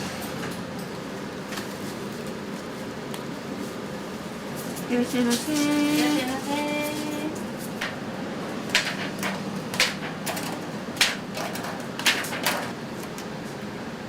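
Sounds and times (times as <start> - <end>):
background hum: 0.0 - 14.0
kitchen clacks and knocks: 8.7 - 12.8.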